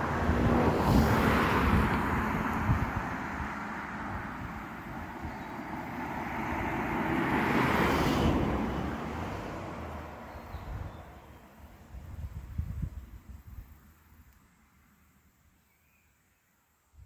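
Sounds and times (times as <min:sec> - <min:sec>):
vehicle driving past: 0:00.0 - 0:10.6.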